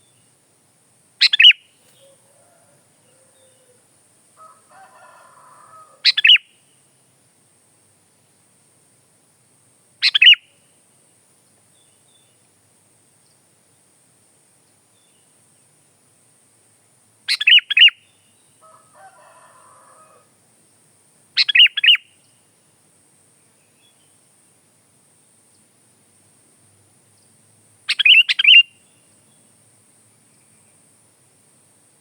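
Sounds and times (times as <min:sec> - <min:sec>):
bird chirping: 0:01.2 - 0:03.8, 0:06.0 - 0:06.7, 0:10.0 - 0:10.6, 0:17.3 - 0:18.6, 0:21.4 - 0:22.5, 0:27.1 - 0:30.9
faint scratchy rustle: 0:01.8 - 0:02.9.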